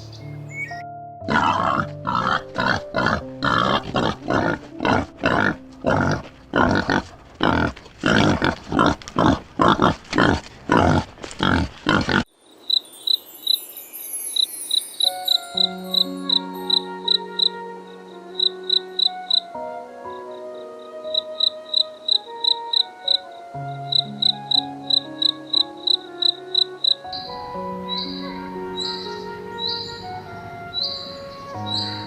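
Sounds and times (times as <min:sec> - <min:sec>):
music: 0:00.0 - 0:08.2, 0:12.4 - 0:32.0
animal rapid rough calls: 0:01.3 - 0:12.3
high insect chirps: 0:10.8 - 0:17.7, 0:18.3 - 0:19.5, 0:20.3 - 0:30.0.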